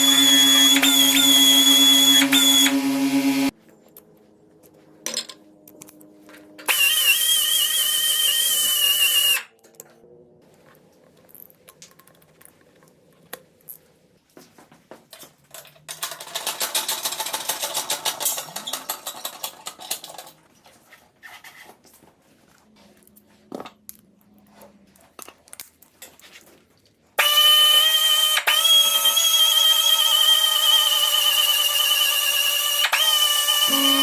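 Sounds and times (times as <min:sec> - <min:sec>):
rotary power tool whining: 0:00.0 - 0:03.5, 0:06.7 - 0:09.4, 0:27.2 - 0:34.0.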